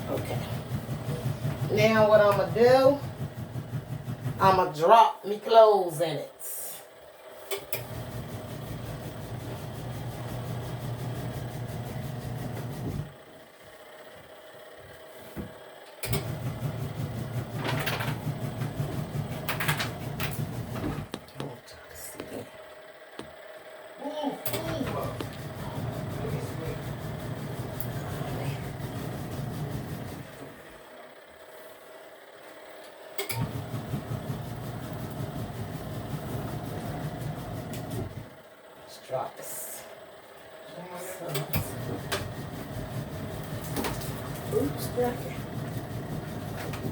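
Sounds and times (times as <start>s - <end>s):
washing machine motor humming: 0.0s - 46.9s
washing machine motor click: 7.4s - 8.1s, 15.9s - 21.5s, 24.4s - 26.0s, 33.2s - 34.1s.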